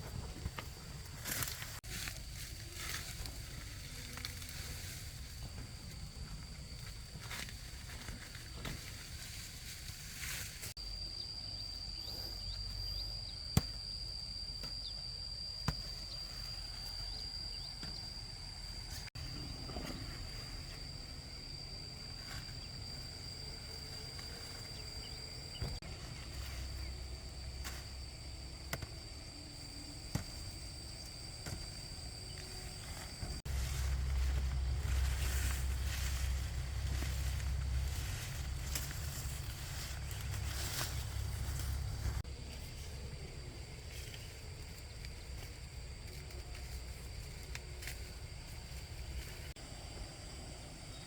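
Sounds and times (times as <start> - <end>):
high-pitched whine: 0.0 - 51.0
low rumble: 32.9 - 42.3.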